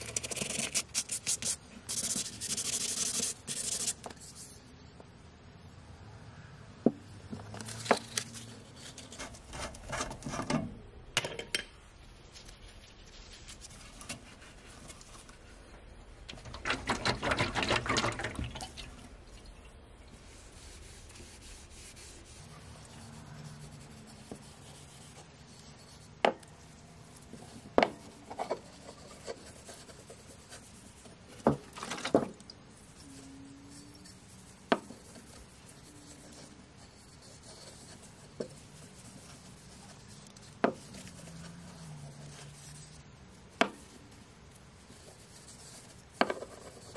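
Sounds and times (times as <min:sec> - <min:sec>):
cloth rag rubbing wooden handle: 0:20.2 - 0:25.7.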